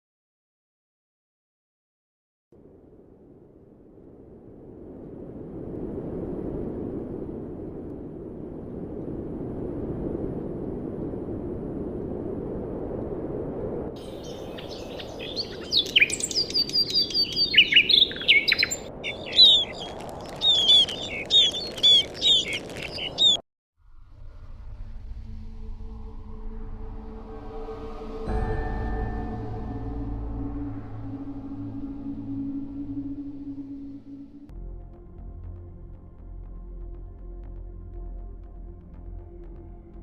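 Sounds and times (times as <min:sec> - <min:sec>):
bird chirping: 0:14.0 - 0:23.4.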